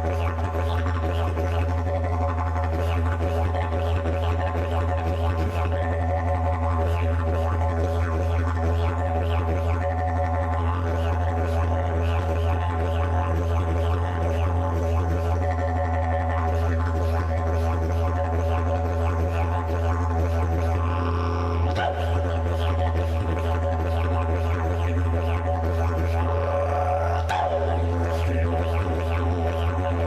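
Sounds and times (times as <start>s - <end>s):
didgeridoo drone: 0.0s - 30.0s.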